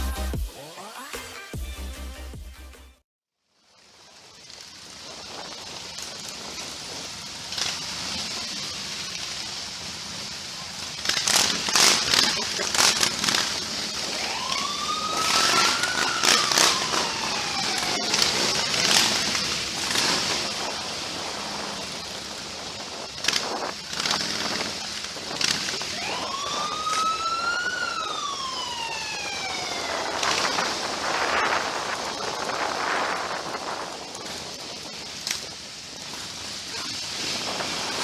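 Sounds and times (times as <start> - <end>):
siren wailing: 13.8 - 19.2, 25.7 - 33.6.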